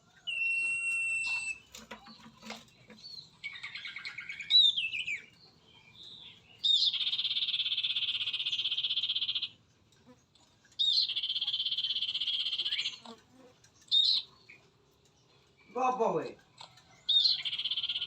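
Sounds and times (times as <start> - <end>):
bird trills: 0.0 - 15.9, 16.7 - 18.0.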